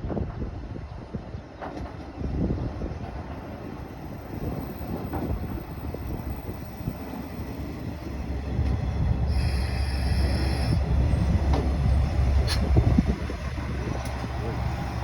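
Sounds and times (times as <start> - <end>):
train engine and wheels rumble: 0.0 - 15.0
high brake squeal: 9.3 - 11.4.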